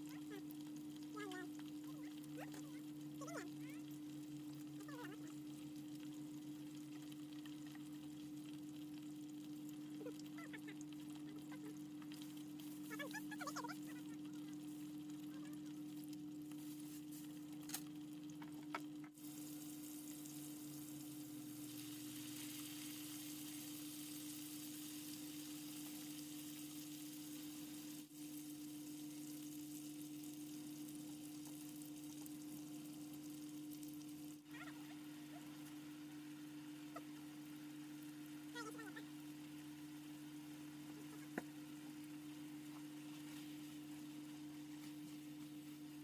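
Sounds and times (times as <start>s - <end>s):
food sizzling: 0.0s - 46.0s.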